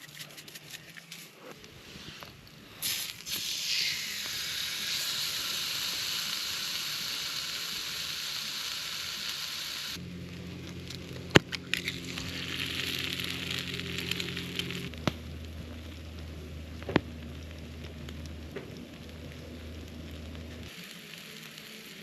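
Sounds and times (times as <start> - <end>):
steak sizzling on hot plate: 2.8 - 10.0, 11.7 - 15.0, 20.7 - 22.0
sharp crack: 10.3 - 22.0.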